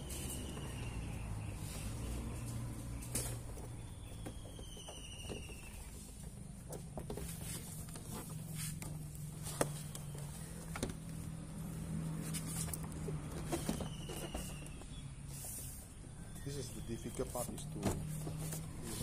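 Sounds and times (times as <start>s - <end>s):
bird whistle: 4.1s - 6.0s, 13.6s - 15.0s.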